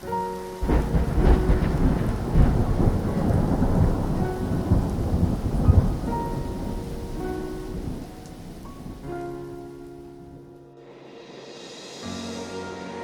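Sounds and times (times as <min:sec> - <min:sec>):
gusty wind rumble: 0:00.6 - 0:10.4.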